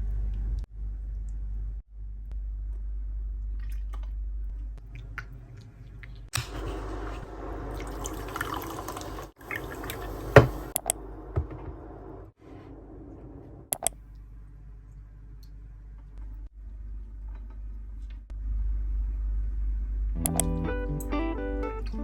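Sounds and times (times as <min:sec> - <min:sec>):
running water: 0:06.4 - 0:11.8.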